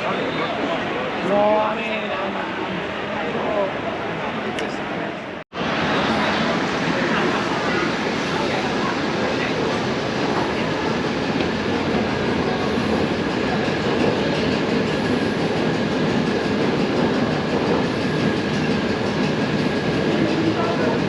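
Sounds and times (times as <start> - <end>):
train rail rumble: 5.6 - 21.0.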